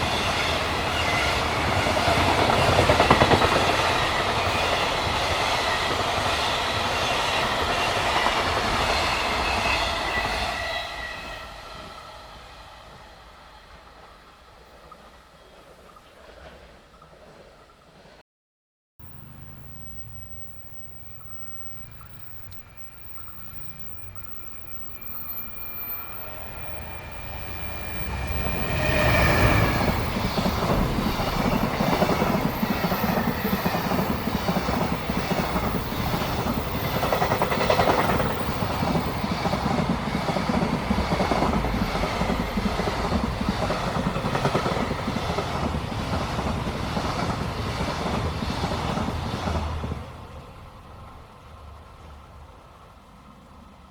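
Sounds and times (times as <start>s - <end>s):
wagon wheels clickety-clack on rails: 0.0s - 10.2s, 19.1s - 50.0s
freight train rumble: 0.0s - 18.2s, 19.0s - 53.9s
thin steady whine: 19.1s - 39.1s.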